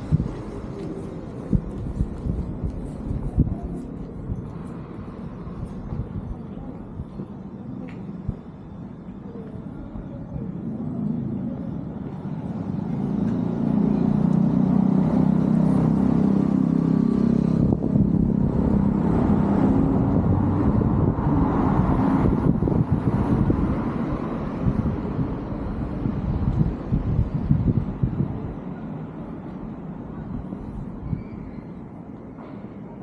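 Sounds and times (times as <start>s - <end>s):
tyre and road noise: 0.0s - 33.0s.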